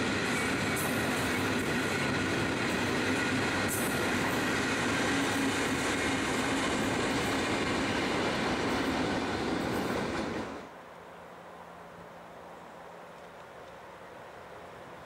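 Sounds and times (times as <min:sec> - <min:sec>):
diesel locomotive engine running: 0:00.0 - 0:10.7
wheels rumbling on rail: 0:00.0 - 0:15.0.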